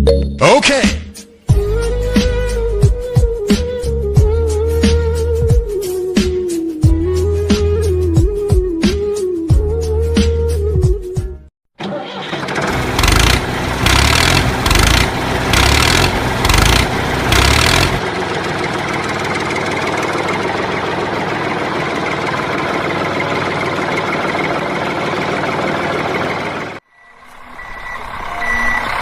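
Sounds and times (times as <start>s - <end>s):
tractor engine surging and idling: 11.8s - 29.0s.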